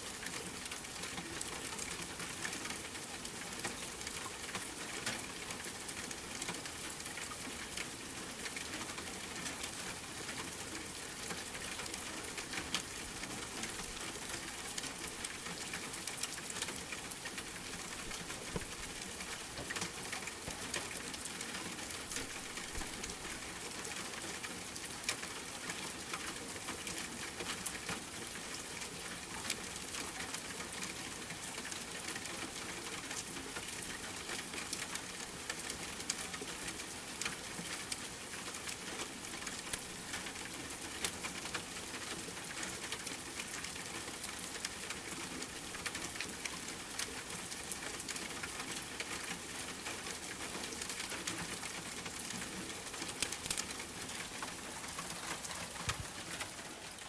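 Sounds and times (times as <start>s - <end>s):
rain falling: 0.0s - 57.0s
wood fire crackling: 16.9s - 20.6s, 22.0s - 23.3s, 52.8s - 57.0s.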